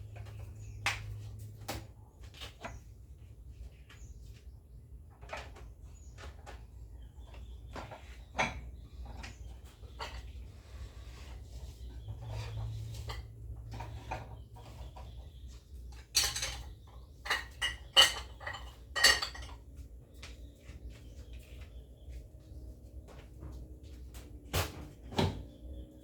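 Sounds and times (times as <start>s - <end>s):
kitchenware clicks and knocks: 16.0s - 19.7s
dishes clinking and clattering: 16.0s - 19.8s.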